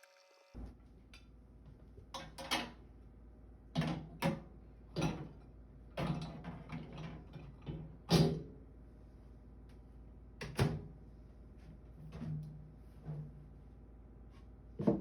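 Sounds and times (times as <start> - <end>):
objects knocking and clunking: 14.8 - 15.0.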